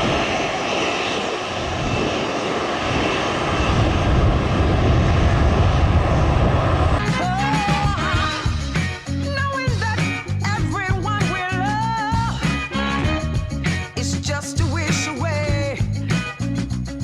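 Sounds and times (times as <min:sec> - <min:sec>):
jet engines drone: 0:00.0 - 0:09.2
music: 0:07.0 - 0:17.0.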